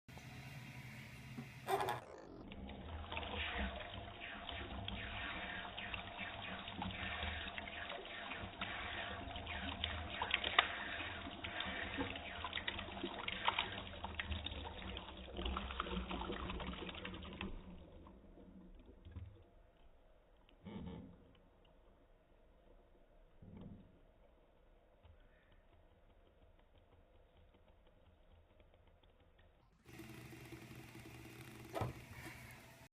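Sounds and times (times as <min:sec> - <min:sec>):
water dripping and trickling: 0:02.4 - 0:20.0, 0:29.4 - 0:32.9.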